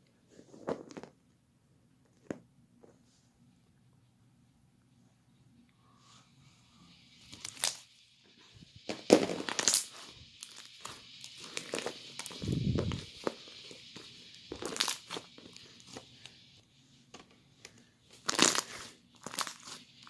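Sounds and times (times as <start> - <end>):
crinkling and rustling: 0.1 - 1.4, 8.8 - 16.4, 17.1 - 20.0
steady hiss: 3.0 - 20.0.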